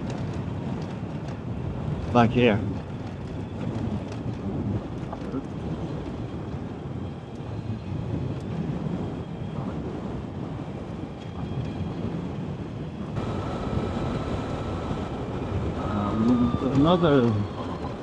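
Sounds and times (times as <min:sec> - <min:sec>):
wind on microphone: 0:00.0 - 0:18.0
faint steady whine: 0:13.2 - 0:18.0.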